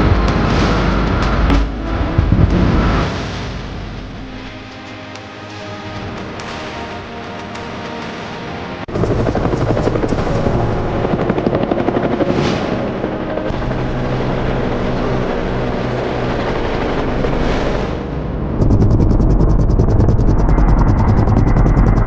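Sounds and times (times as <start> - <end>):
music: 0.0 - 22.0
helicopter rotor and engine: 8.9 - 22.0.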